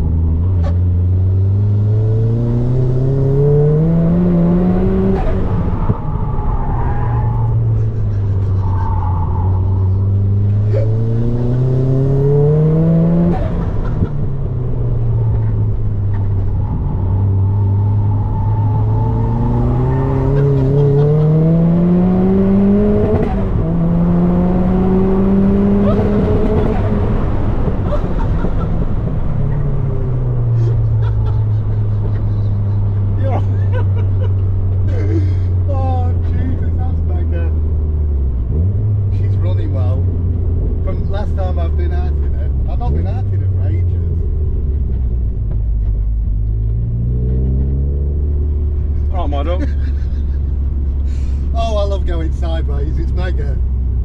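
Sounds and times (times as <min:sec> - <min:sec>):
car engine revving hard: 0:00.8 - 0:06.2, 0:09.5 - 0:14.3, 0:17.2 - 0:33.2.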